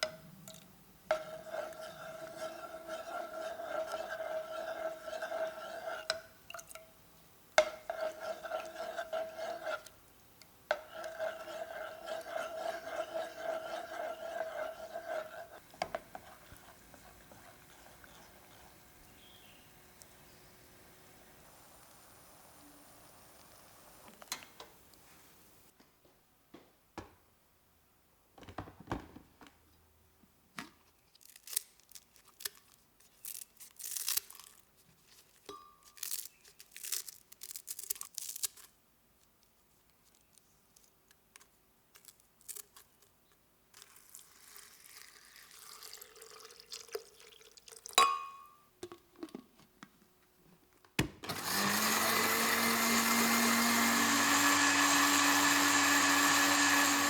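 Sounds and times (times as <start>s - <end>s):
electric blender running: 51.3s - 57.0s.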